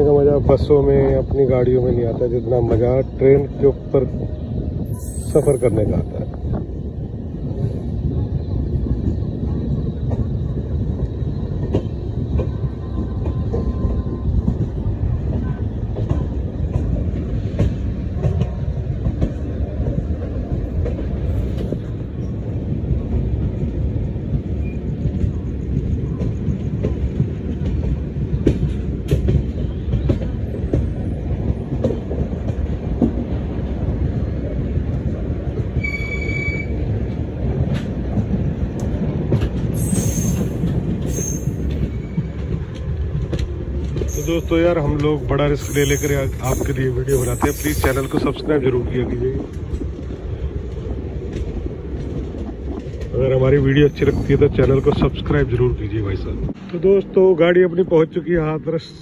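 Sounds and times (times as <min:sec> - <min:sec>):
rail joint clicks and knocks: 0:00.0 - 0:58.7
train wheels rumbling on rails: 0:00.0 - 0:59.0.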